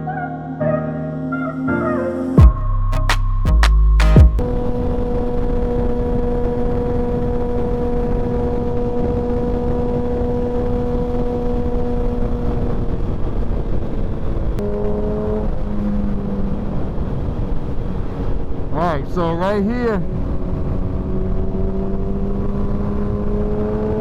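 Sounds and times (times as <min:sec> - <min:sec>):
wind rush on microphone: 0:04.4 - 0:14.7, 0:15.4 - 0:24.0
motorcycle engine cruising: 0:04.4 - 0:18.8, 0:20.0 - 0:24.0.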